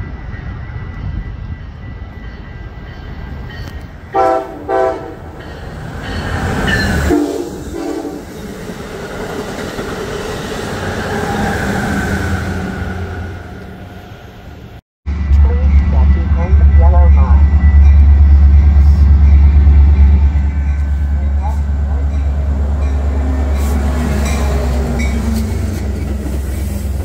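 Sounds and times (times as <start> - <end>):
train rumbling past: 0.0 - 27.0
train horn blasts: 4.1 - 5.3, 7.1 - 8.3.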